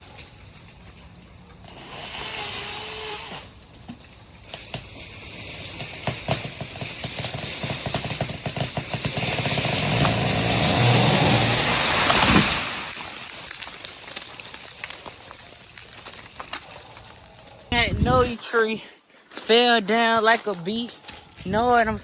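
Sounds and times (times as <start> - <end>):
wood cracking and popping: 0.0 - 1.8, 3.5 - 18.4
rush of falling leaves and branches: 0.0 - 19.4.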